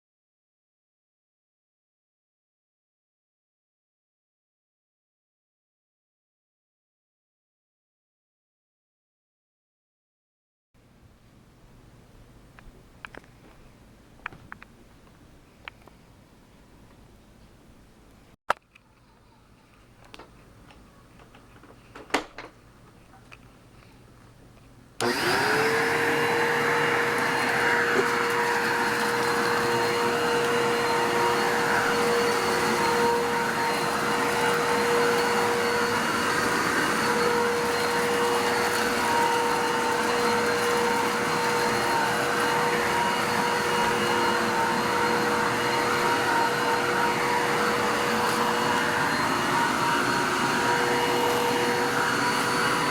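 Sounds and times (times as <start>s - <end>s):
vacuum cleaner running: 25.0s - 52.9s.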